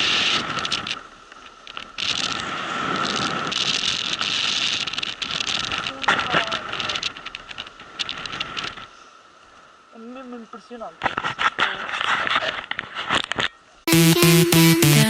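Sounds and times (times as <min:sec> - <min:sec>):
steady high tone: 0:13.9 - 0:15.0.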